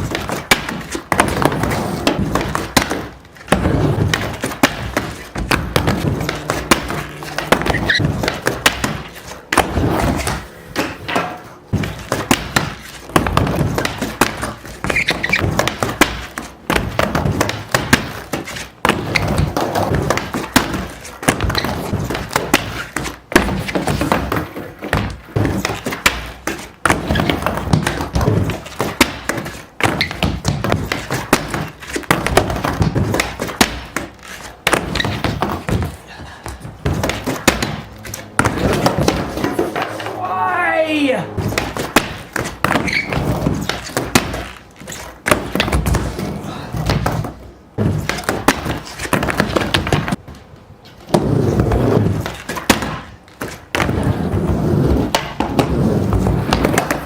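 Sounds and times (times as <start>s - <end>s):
skateboard knocking against ramp: 0.0s - 36.0s, 36.6s - 40.0s
skateboard rolling on wooden ramp: 0.0s - 40.2s, 41.3s - 57.0s.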